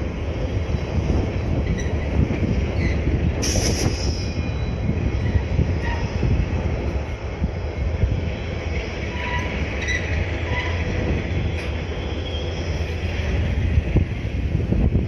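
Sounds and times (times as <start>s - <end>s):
diesel locomotives rumbling: 0.0s - 15.0s
high wheel squeals: 1.6s - 2.0s, 2.7s - 6.3s, 9.0s - 13.2s.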